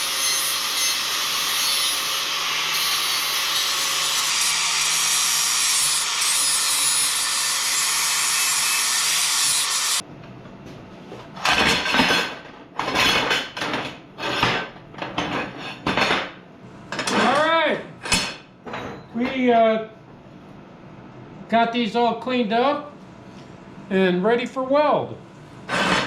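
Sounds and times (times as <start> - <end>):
metal being filed: 0.0 - 10.0
power tool grinding metal: 0.0 - 10.0.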